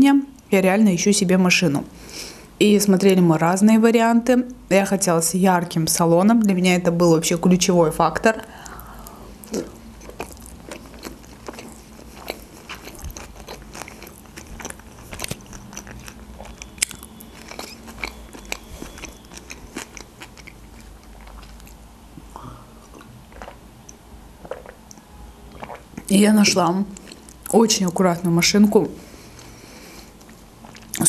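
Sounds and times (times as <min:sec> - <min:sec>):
person chewing with wet clicks: 0:08.6 - 0:26.1, 0:26.9 - 0:28.0, 0:29.3 - 0:31.0
person swallowing juice: 0:09.4 - 0:10.6, 0:22.2 - 0:23.6, 0:24.4 - 0:24.8.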